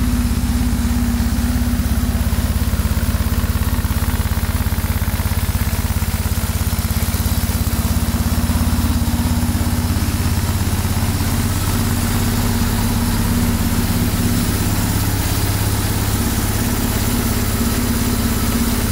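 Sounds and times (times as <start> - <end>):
motorcycle engine idling: 0.0 - 18.9.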